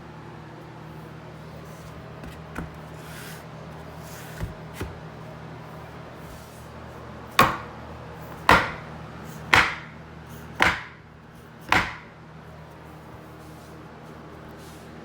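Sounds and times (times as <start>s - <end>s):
hammer striking wooden block: 7.4s - 7.7s, 8.4s - 8.9s, 9.5s - 9.9s, 10.6s - 11.0s, 11.7s - 12.1s.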